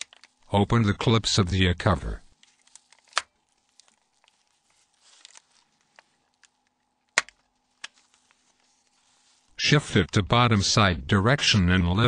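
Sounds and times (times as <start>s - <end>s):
plastic clicks and scraping: 0.0s - 0.4s, 2.4s - 4.5s
phone cover snapping open: 2.9s - 3.4s, 7.1s - 8.0s.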